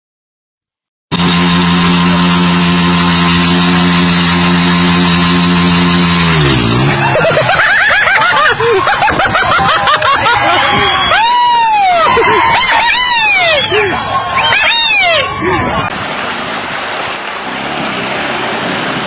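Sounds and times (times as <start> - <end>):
motorcycle engine revving: 1.1 - 8.0
rising and falling squeals: 10.4 - 18.5.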